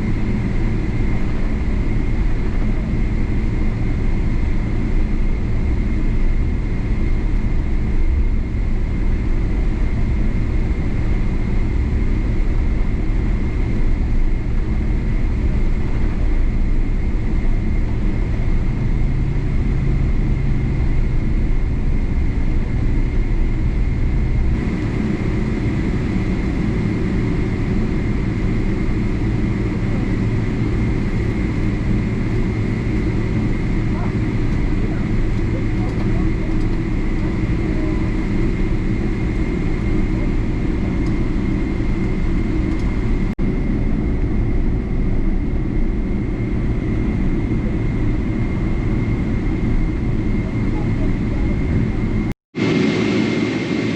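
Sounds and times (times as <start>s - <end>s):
airliner cabin engine rumble: 0.0s - 53.9s.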